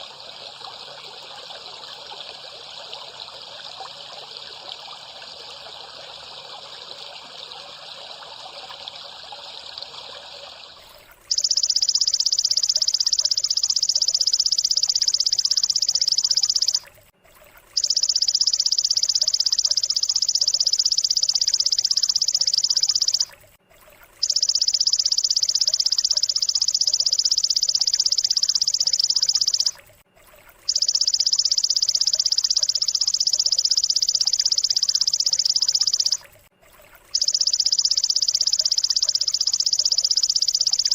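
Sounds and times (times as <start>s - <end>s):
trickling water: 0.0s - 40.9s
high buzzing bird trill: 11.3s - 16.8s, 17.8s - 23.3s, 24.2s - 29.8s, 30.7s - 36.2s, 37.2s - 40.9s.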